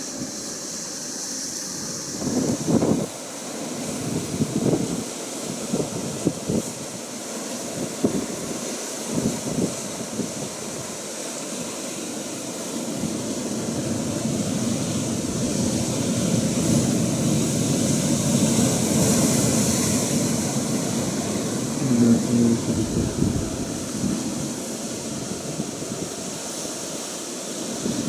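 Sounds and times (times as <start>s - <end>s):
wind buffeting microphone: 2.2s - 3.1s, 13.7s - 26.4s.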